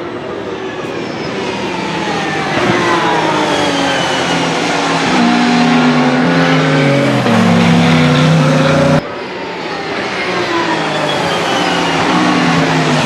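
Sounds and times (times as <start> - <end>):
engine downshifts: 0.0 - 13.0
race car engine approaching: 0.0 - 13.0.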